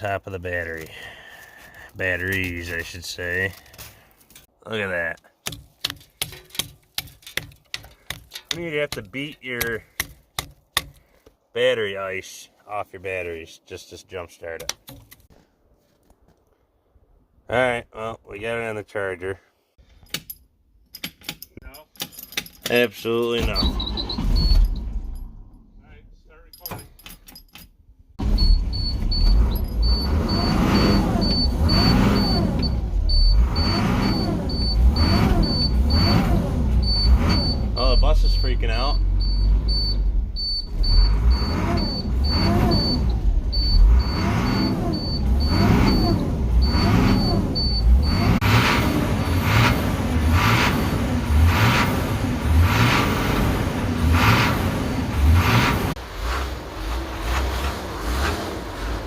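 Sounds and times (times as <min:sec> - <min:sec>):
diesel bus engine surging: 0:28.2 - 0:59.0.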